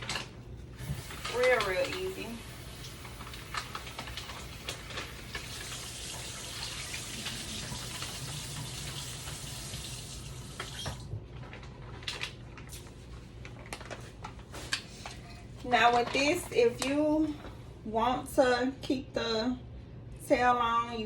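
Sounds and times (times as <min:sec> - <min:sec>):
water running from faucet: 0:00.8 - 0:11.1.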